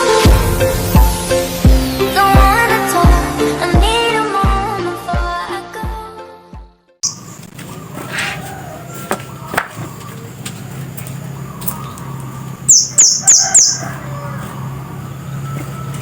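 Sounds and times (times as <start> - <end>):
bird giving sharp high chips: 7.0 - 7.4, 12.7 - 14.0.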